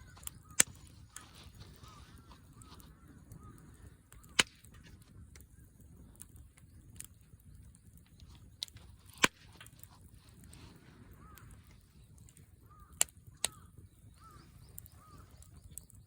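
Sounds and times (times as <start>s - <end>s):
firewood crackling: 0.0s - 16.0s
firewood popping: 0.0s - 16.0s.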